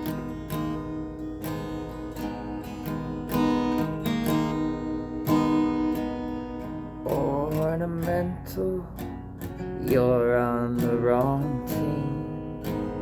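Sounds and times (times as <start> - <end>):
acoustic guitar strumming: 0.0 - 13.0
person singing: 7.0 - 13.0.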